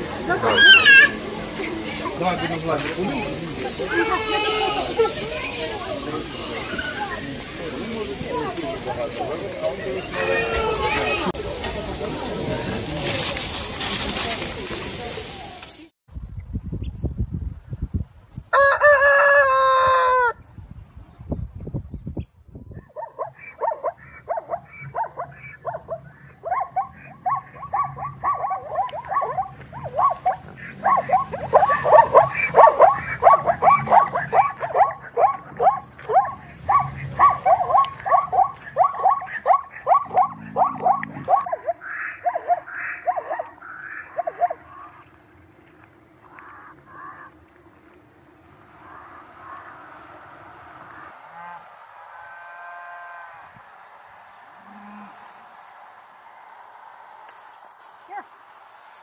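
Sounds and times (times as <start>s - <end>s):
animal calling in short calls: 0.5s - 1.2s.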